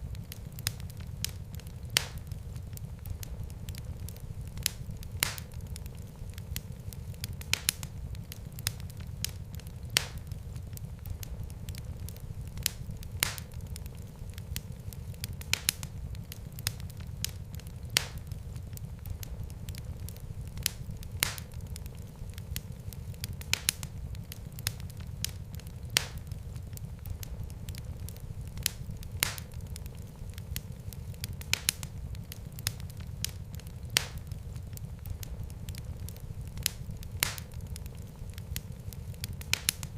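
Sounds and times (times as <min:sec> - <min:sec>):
fire crackling and popping: 0:00.0 - 0:39.9
low rumble of burning: 0:00.0 - 0:39.9.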